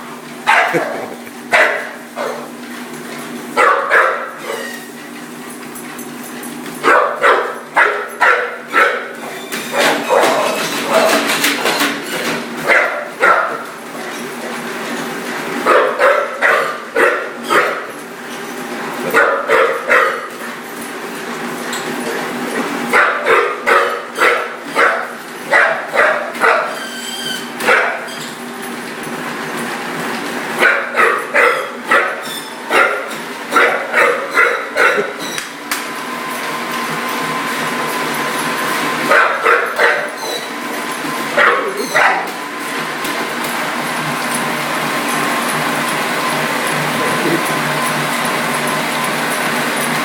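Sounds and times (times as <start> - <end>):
treadmill running: 0.0 - 50.0
dog barking and yipping: 0.5 - 2.6, 3.6 - 4.9, 6.8 - 11.2, 12.6 - 13.7, 15.6 - 17.9, 19.0 - 20.4, 22.9 - 27.0, 27.6 - 28.2, 30.6 - 35.3, 39.0 - 40.6, 41.2 - 42.4.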